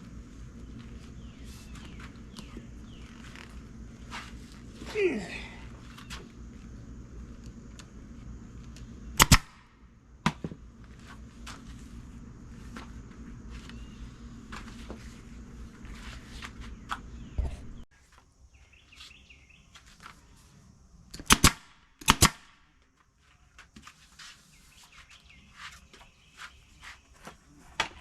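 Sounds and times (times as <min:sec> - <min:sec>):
low hum: 0:00.0 - 0:17.9
loud staple gun shots: 0:09.2 - 0:10.4, 0:21.2 - 0:22.6.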